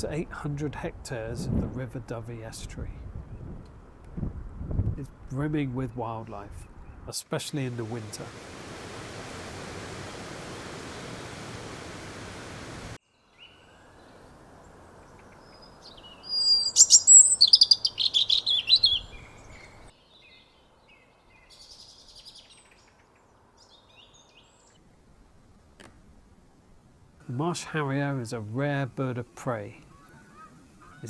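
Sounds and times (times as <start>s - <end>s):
steady outdoor hiss: 3.7s - 31.0s
bird chirping: 13.2s - 24.8s.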